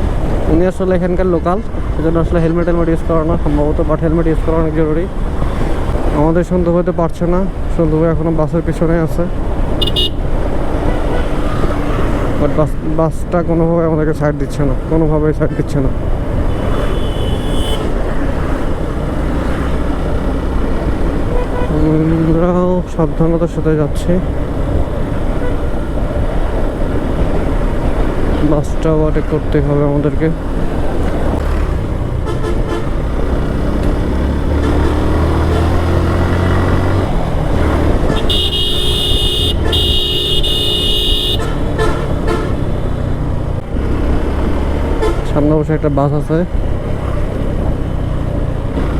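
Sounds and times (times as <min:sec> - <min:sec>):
motorcycle engine and road noise: 0:00.0 - 0:48.9
high-pitched vehicle horn honking: 0:09.8 - 0:10.2, 0:16.5 - 0:17.9, 0:21.3 - 0:21.8, 0:32.2 - 0:32.9, 0:38.1 - 0:42.6
motorcycle engine revving: 0:30.4 - 0:45.5.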